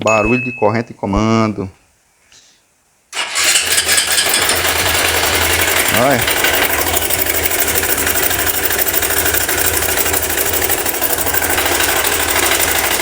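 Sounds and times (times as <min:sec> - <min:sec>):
cam chain metallic clatter: 0:03.5 - 0:13.0
motorcycle engine idling: 0:03.6 - 0:13.0.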